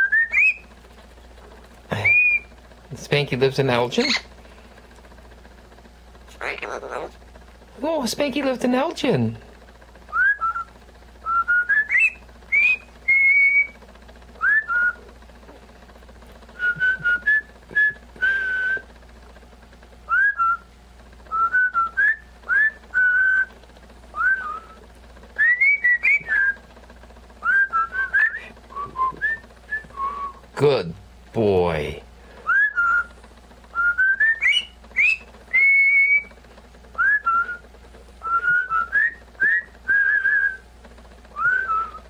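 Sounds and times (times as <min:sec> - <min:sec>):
parrot whistling: 0:00.0 - 0:00.6, 0:02.0 - 0:02.5, 0:10.2 - 0:13.8, 0:25.4 - 0:26.6, 0:32.4 - 0:33.1, 0:33.8 - 0:36.3.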